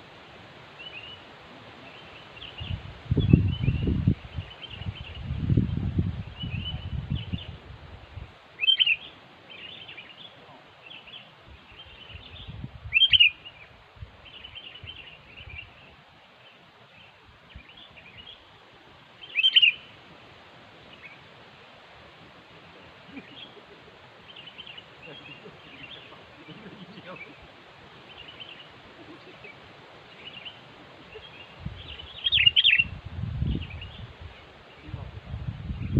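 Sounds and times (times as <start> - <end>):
bird sharp calls: 8.6 - 10.3, 12.9 - 13.7, 19.2 - 20.0, 28.0 - 32.9
faint bird chirps: 8.6 - 18.5, 19.2 - 20.0, 22.8 - 35.0.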